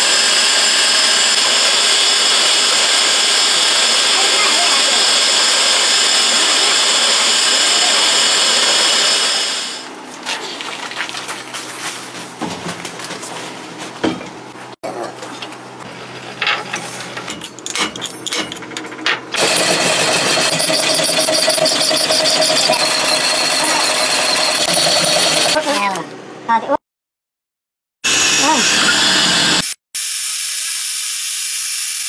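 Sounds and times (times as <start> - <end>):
mechanical knocks and clatter: 16.3 - 25.6
machine running with rhythmic rattle: 16.4 - 25.8.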